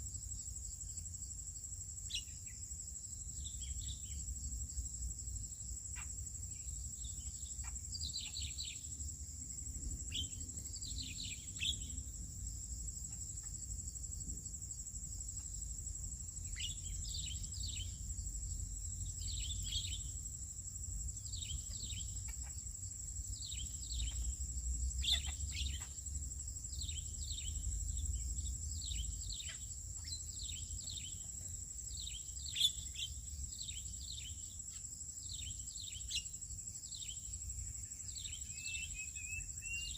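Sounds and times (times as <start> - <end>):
insect drone: 0.0 - 39.9
birds chirping: 25.0 - 26.0.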